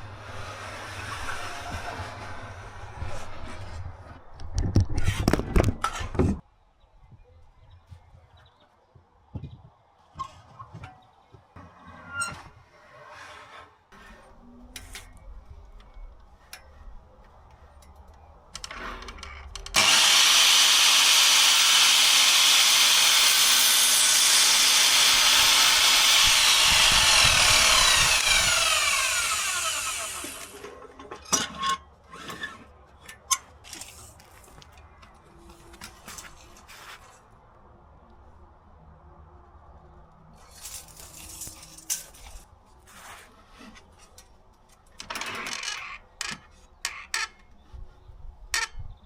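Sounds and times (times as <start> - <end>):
electric power saw cutting wood: 19.8 - 30.6.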